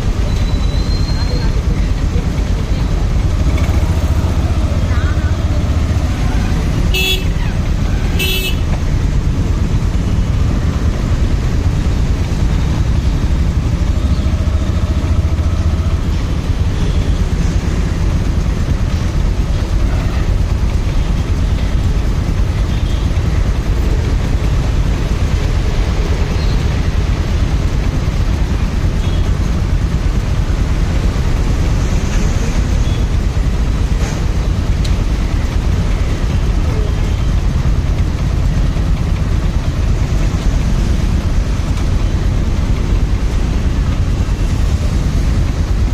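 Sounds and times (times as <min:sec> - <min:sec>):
motorcycle engine and road rumble: 0:00.0 - 0:45.9.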